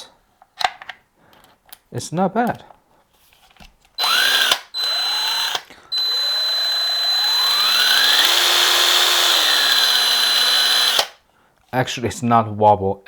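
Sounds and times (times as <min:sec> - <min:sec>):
impact driver spinning: 0:04.0 - 0:11.2.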